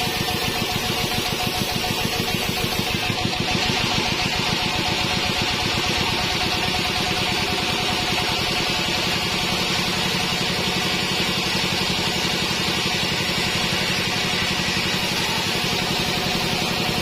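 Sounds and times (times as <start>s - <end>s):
bandsaw and engine running: 0.0s - 17.0s.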